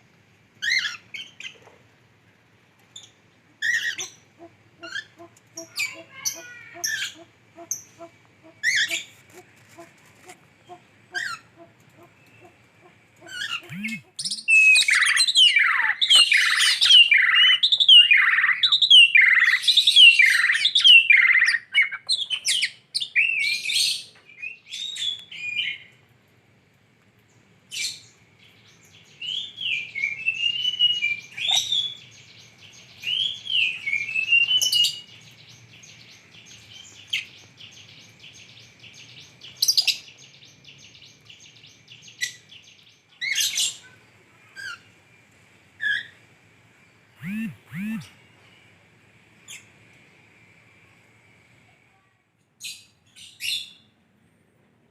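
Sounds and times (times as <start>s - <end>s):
lovebird chirping: 10.6s - 15.4s, 47.2s - 48.1s
faint steady high tone: 13.7s - 14.2s, 47.2s - 48.2s.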